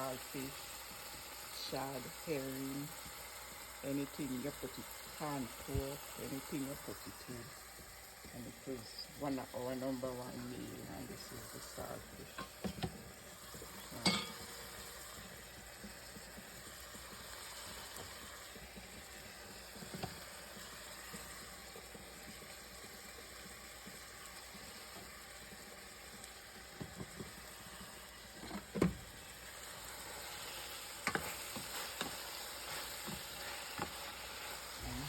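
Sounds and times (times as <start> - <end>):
food sizzling in a pot: 0.0 - 35.0.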